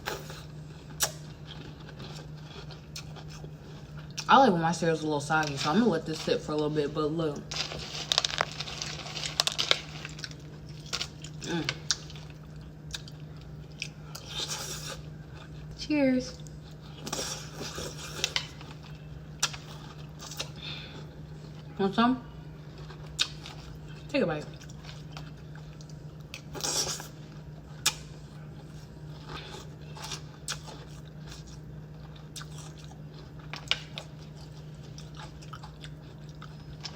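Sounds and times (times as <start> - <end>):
chewing and crunching cereal: 0.0 - 21.8, 22.5 - 36.9
steady low hum: 0.0 - 36.9
cereal crunching in milk: 7.4 - 13.4.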